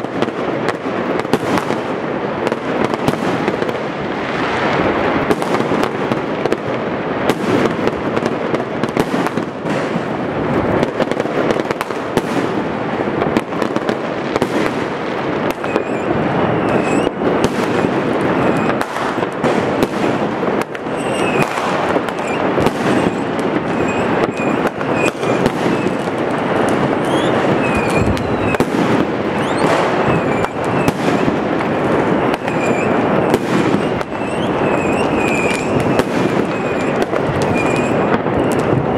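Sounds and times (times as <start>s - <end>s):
fireworks crackling and banging: 0.0s - 38.9s
firework whistles: 13.4s - 38.9s.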